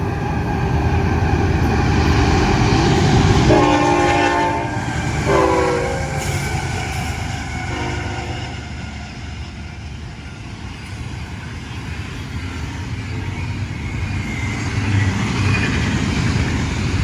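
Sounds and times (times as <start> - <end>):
freight train rumble: 0.0 - 17.0
train horn: 3.4 - 6.5, 7.6 - 8.7.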